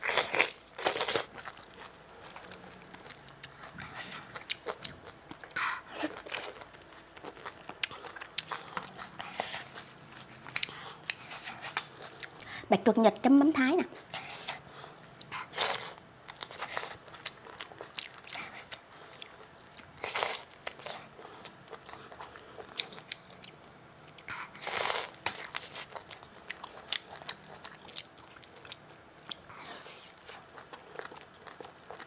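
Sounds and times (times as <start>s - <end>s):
crunchy chewing clicks: 16.3s - 32.0s.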